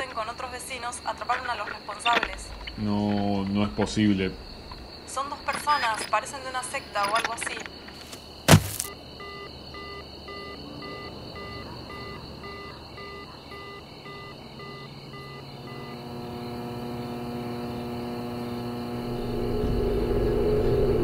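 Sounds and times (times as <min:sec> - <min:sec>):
low drone: 0:02.4 - 0:05.1, 0:15.8 - 0:21.0
car warning chime beeping: 0:09.2 - 0:16.2
high steady ringing tone: 0:09.2 - 0:21.0.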